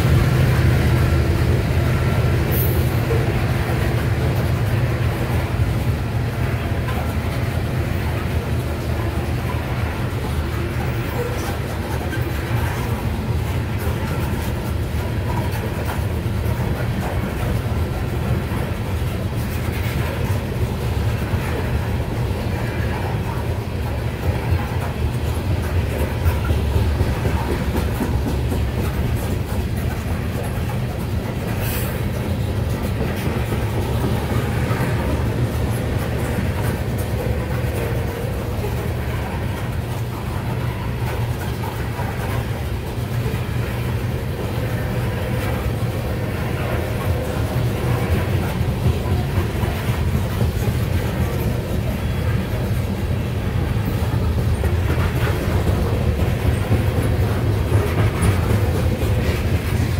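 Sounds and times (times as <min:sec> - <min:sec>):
steel wheels rumbling on rail: 0:00.0 - 0:59.9
wheels clicking over rail joints: 0:00.0 - 0:59.9.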